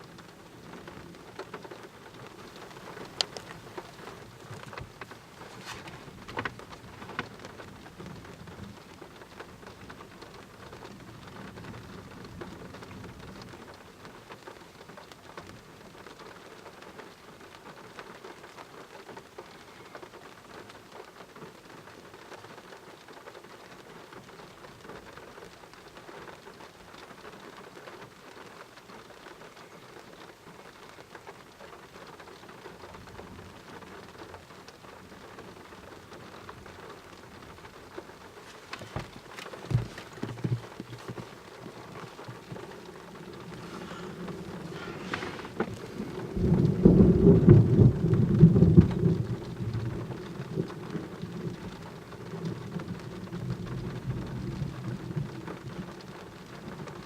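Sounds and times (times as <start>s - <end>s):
heavy rain falling: 0.0s - 57.0s
thunder rumble: 35.9s - 55.8s.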